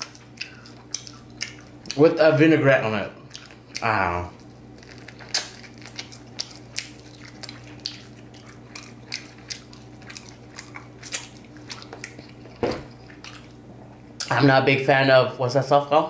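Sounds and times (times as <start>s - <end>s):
biting and chewing: 0.0s - 2.2s, 3.2s - 13.7s
faint steady hum: 0.0s - 16.0s.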